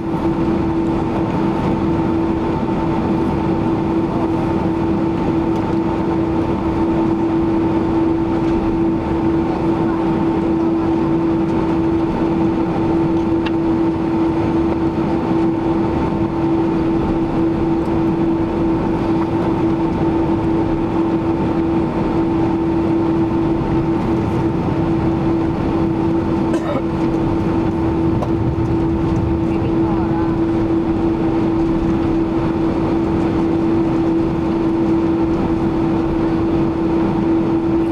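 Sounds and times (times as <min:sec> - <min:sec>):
aircraft cabin engine rumble: 0:00.0 - 0:37.9.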